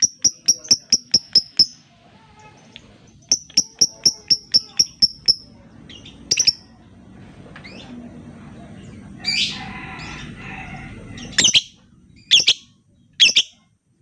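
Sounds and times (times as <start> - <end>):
bird chirping: 0.0 - 1.8, 2.4 - 6.8, 11.2 - 13.7.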